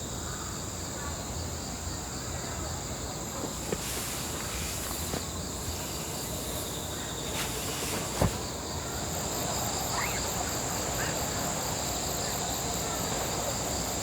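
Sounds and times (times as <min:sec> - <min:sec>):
rapidly pulsing high insect call: 0:00.0 - 0:14.0
insects calling shrill: 0:03.4 - 0:14.0.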